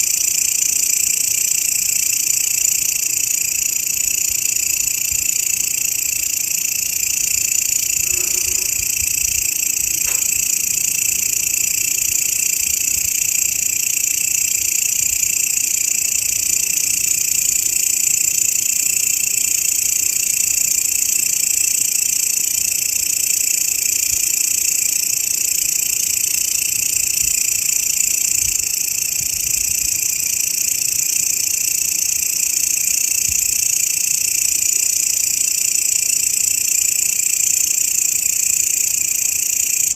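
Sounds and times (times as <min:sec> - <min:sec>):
grasshoppers buzzing: 0:05.4 - 0:15.4.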